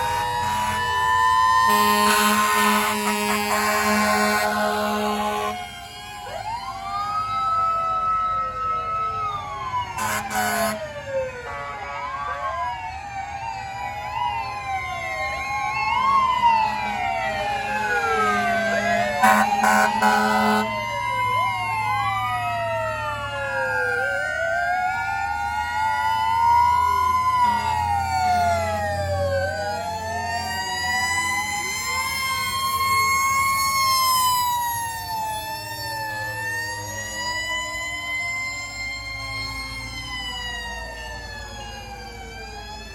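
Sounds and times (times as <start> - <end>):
fire truck sirens wailing: 0.0 - 42.9
horn blasts: 1.7 - 5.6, 10.0 - 10.9, 19.2 - 20.7.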